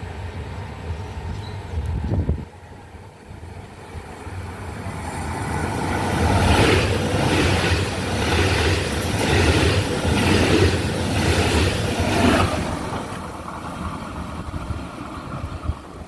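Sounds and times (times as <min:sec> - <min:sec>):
train engine hum: 0:00.0 - 0:16.0
rhythmic train wheel clatter: 0:03.6 - 0:16.0.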